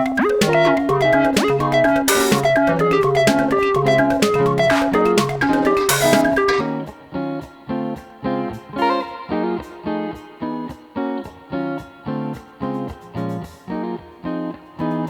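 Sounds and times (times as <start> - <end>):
guitar picking single notes: 0.0 - 10.7.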